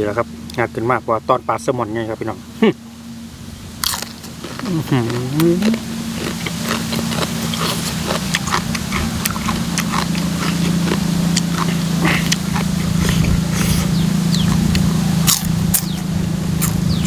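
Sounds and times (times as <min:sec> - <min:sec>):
steady low hum: 0:00.0 - 0:17.0
chewing and lip-smacking: 0:03.8 - 0:17.0.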